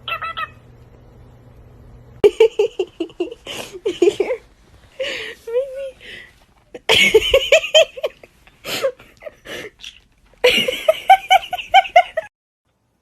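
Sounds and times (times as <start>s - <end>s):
person laughing: 2.2s - 6.0s, 6.7s - 12.3s.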